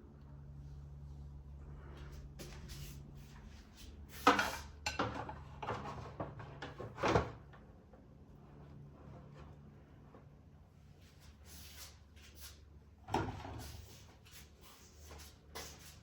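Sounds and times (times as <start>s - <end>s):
low steady hum: 0.0s - 11.5s.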